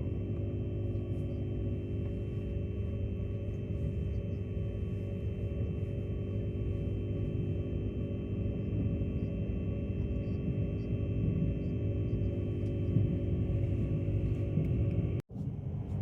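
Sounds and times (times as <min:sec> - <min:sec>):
steady humming tones: 0:00.0 - 0:16.0
train running gear rumble: 0:09.9 - 0:16.0.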